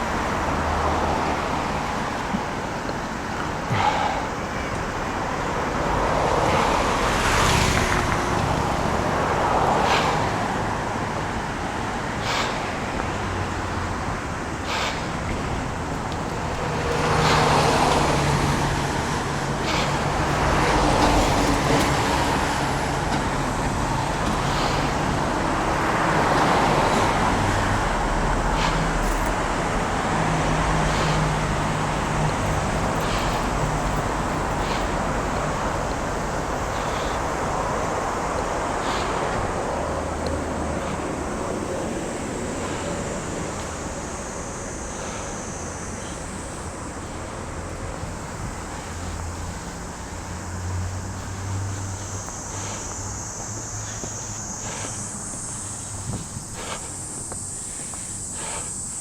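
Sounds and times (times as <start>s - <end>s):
cars passing: 0.0s - 59.0s
engine hum: 0.0s - 59.0s.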